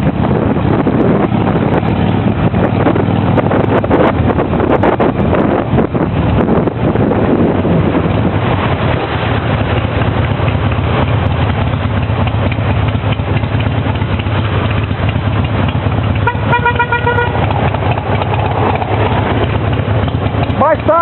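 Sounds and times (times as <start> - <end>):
motorcycle engine rumble: 0.0 - 21.0
vehicle horn honking: 16.2 - 17.6.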